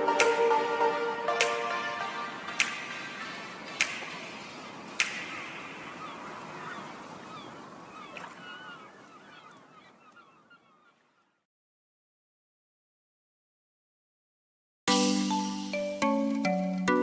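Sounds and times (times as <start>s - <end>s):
chirping bird calls: 2.5s - 11.4s.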